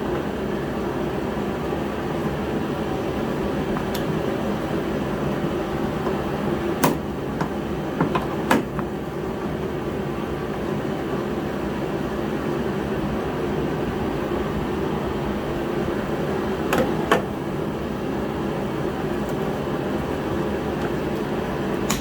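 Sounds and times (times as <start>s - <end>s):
heater whirring: 0.0s - 22.0s
sharp clicks and knocks: 21.8s - 22.0s.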